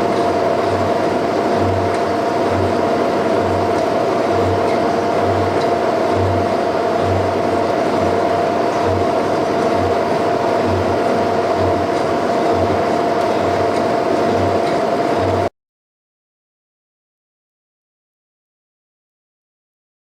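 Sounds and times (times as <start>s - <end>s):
machine whine: 0.0s - 15.5s.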